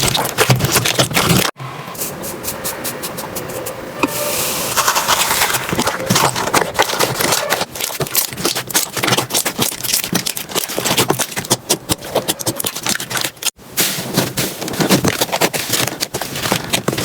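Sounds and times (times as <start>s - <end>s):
slime crackling and popping: 4.9s - 13.6s.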